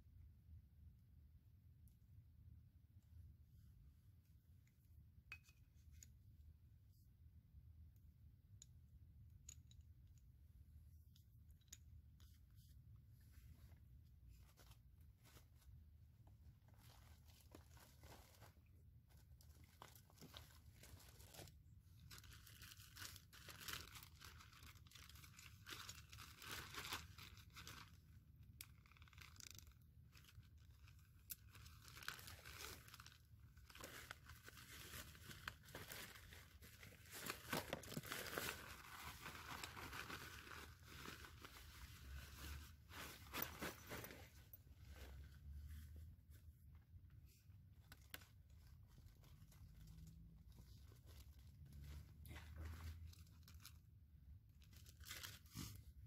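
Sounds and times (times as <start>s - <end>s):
foil pouch crinkling and tearing: 16.8s - 42.6s.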